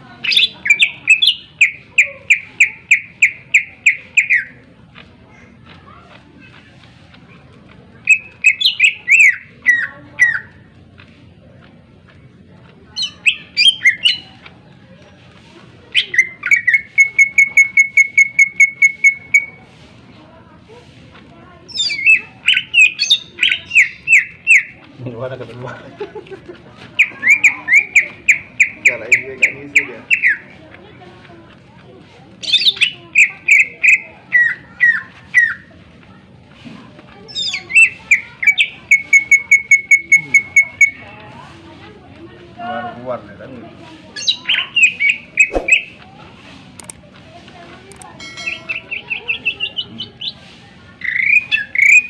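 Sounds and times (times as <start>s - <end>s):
bird singing: 0.2s - 4.5s, 8.1s - 10.5s, 13.0s - 14.3s, 21.7s - 24.8s, 27.0s - 30.4s, 37.3s - 41.0s, 51.0s - 52.0s
bird singing sharp notes: 44.2s - 46.0s.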